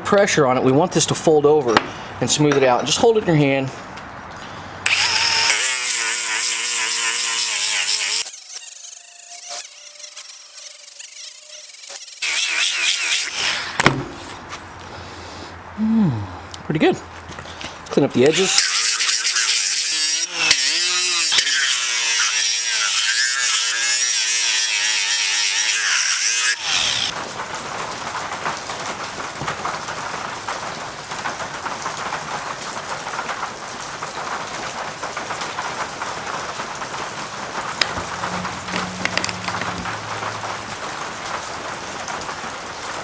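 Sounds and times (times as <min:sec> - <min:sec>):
sanding disc grinding steel: 0:04.9 - 0:14.4, 0:18.2 - 0:27.1, 0:37.8 - 0:41.0.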